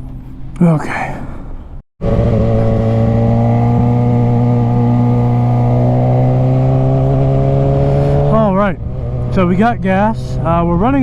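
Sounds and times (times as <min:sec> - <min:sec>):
motorcycle engine running: 0:02.0 - 0:11.0.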